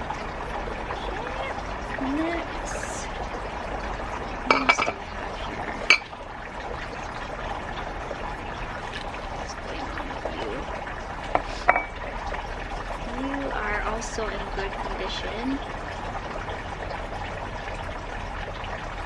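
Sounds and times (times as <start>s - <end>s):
plant pots knocking and clinking: 4.5s - 5.0s, 11.3s - 12.0s.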